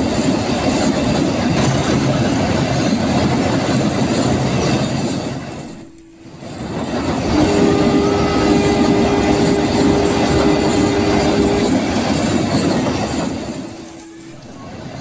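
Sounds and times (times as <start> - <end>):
train passing: 0.0 - 15.0
steady two-note tone: 5.8 - 15.0.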